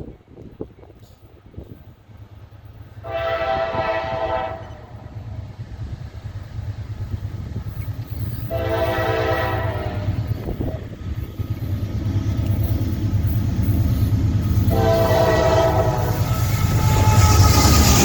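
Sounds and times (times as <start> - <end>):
train low rumble: 0.0 - 18.0
locomotive air horn blasts: 3.0 - 5.0, 8.5 - 10.3, 14.7 - 18.0.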